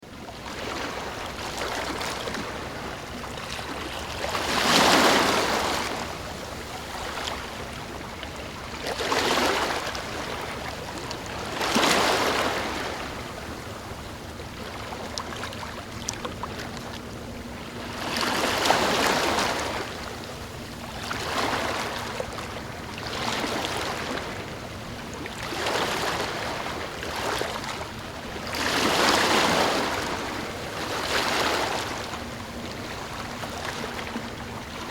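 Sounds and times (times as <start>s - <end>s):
ocean waves surging: 3.8s - 7.4s, 28.5s - 34.9s.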